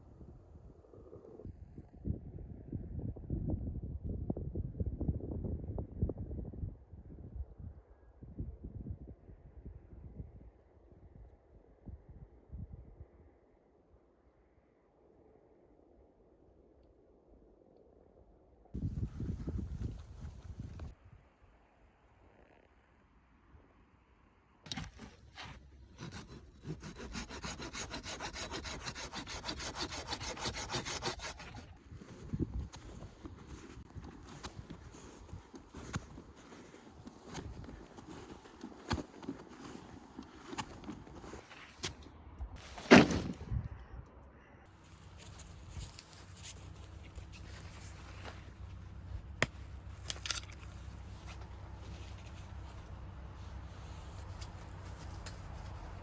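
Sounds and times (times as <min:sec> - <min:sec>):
hand saw cutting wood: 0:24.7 - 0:31.8
low steady rumble: 0:43.4 - 0:56.0.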